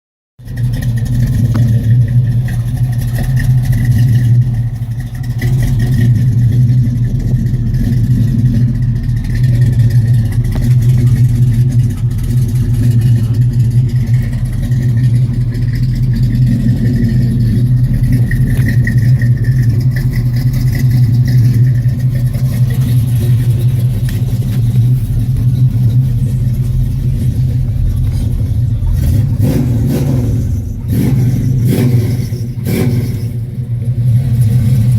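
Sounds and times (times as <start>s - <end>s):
car engine idling loudly: 0.4s - 34.9s.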